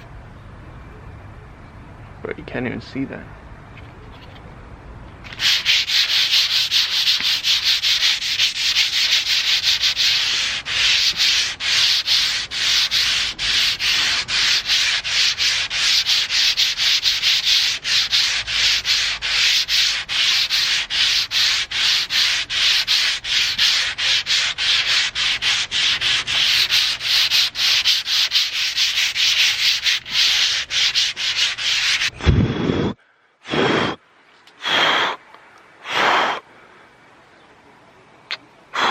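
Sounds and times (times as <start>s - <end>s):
sandpaper rubbing painted metal: 5.2s - 32.2s.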